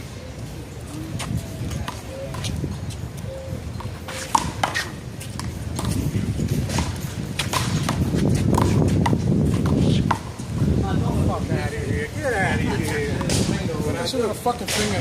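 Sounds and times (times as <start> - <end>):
handball slapping wall and pavement: 3.8 - 10.6.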